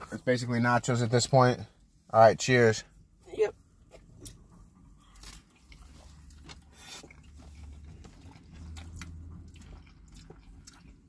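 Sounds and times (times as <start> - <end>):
low steady hum: 0.0 - 11.0
chewing with soft crunches: 3.8 - 11.0.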